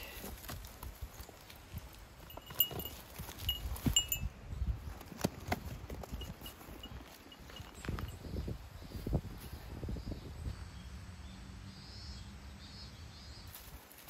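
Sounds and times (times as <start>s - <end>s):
small metal bell jingling: 2.2s - 4.4s, 6.1s - 8.3s.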